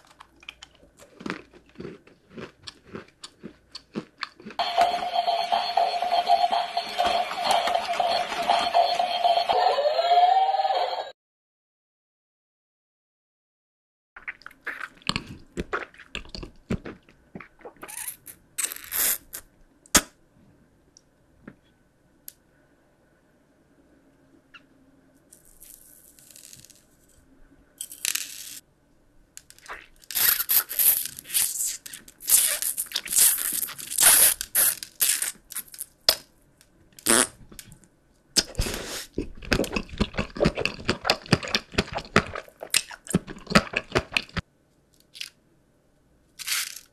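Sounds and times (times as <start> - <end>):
chewing crunchy sweets: 0.0 - 5.0, 14.2 - 17.9, 38.4 - 44.4.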